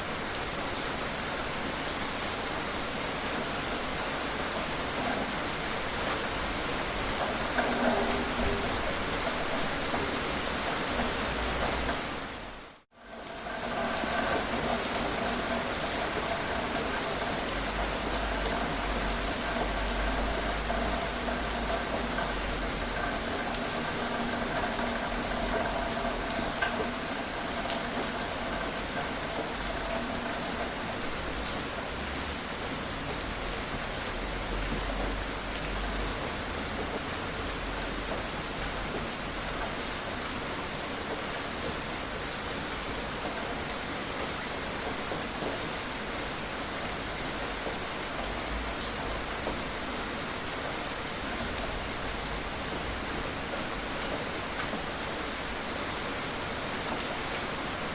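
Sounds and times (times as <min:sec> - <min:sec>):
gentle rain falling: 0:00.0 - 0:57.9.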